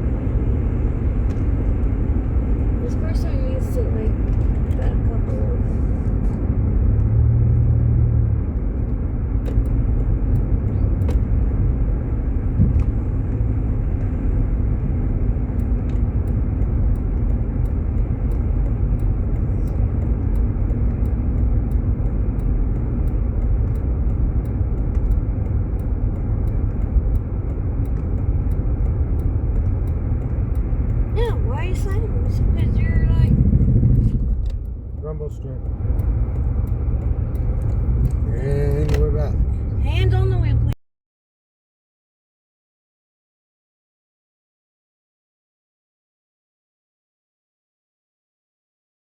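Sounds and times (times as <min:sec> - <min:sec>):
road and tyre rumble: 0:00.0 - 0:40.8
faint ticks: 0:08.5 - 0:39.5.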